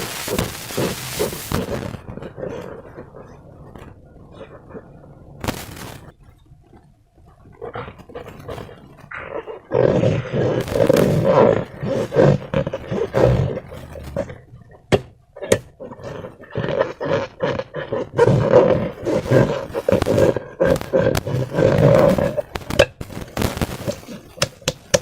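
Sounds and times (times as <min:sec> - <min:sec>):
balloons squeaking: 0:00.0 - 0:02.1, 0:10.6 - 0:14.4, 0:19.0 - 0:24.7.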